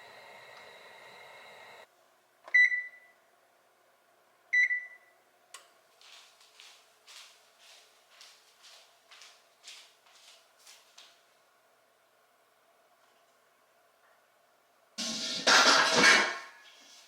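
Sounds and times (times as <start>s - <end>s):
electronic appliance hum: 0.0s - 1.9s.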